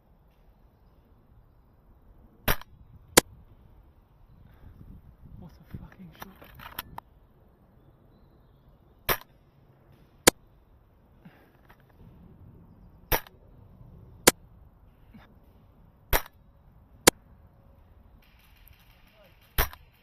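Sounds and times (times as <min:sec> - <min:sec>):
airsoft gun shots: 0:02.4 - 0:03.3, 0:09.1 - 0:09.4, 0:13.1 - 0:13.4, 0:16.1 - 0:17.2, 0:18.2 - 0:20.0.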